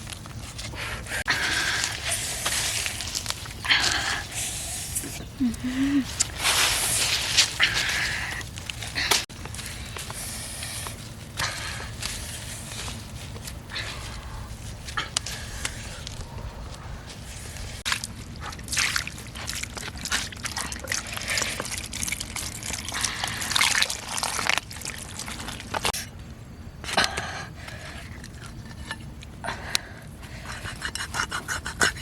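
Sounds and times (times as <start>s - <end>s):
water sloshing and trickling: 17.5s - 26.0s
water splashes: 17.9s - 25.9s.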